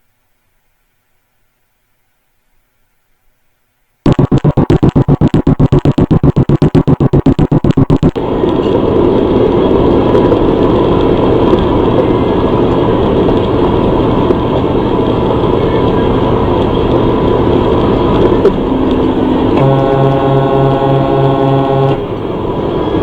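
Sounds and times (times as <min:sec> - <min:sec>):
vehicle engine and road rumble: 0:07.3 - 0:23.0.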